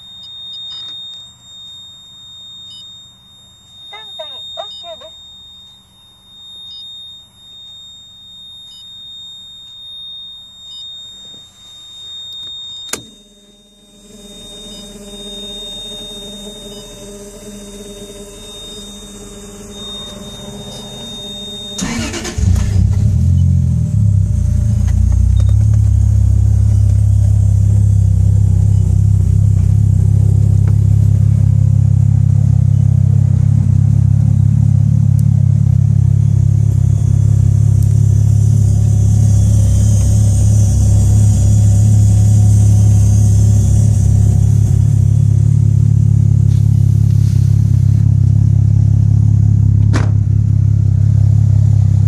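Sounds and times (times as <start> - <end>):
high-pitched electronic beep: 0.0 - 13.1, 13.8 - 31.9, 35.9 - 46.3
low hum: 10.0 - 52.0
car engine cranking and idling: 19.0 - 52.0.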